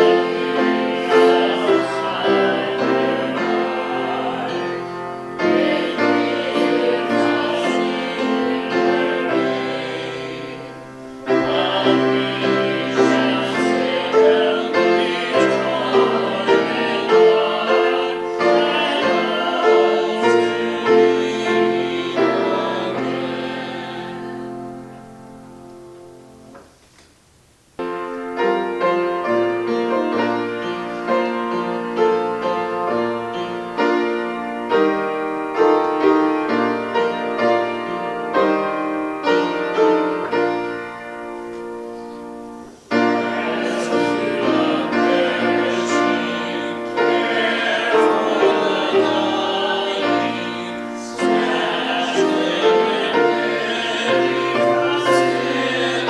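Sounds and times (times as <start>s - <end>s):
person singing with vibrato: 0.0s - 25.2s, 42.7s - 56.0s
piano playing chords: 0.0s - 26.6s, 27.7s - 56.0s.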